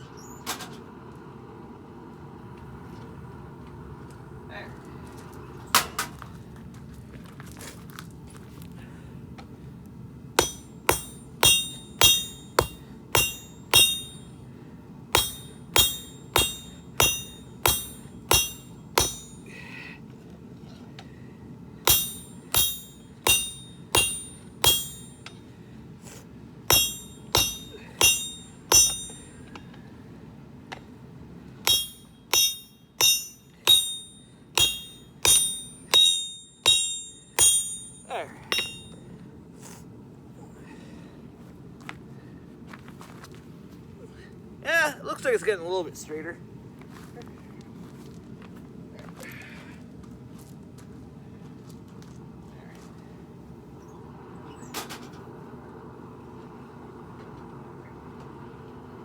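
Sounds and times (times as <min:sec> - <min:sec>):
hammer striking steel on anvil: 0:10.4 - 0:14.3, 0:15.2 - 0:19.6, 0:21.9 - 0:25.4, 0:26.7 - 0:29.6, 0:31.7 - 0:39.0.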